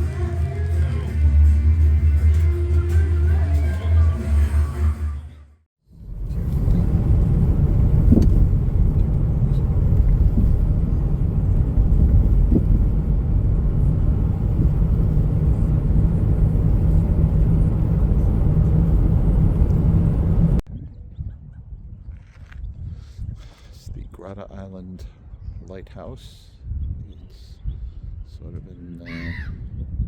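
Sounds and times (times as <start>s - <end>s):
car driving rumble: 5.9s - 20.6s.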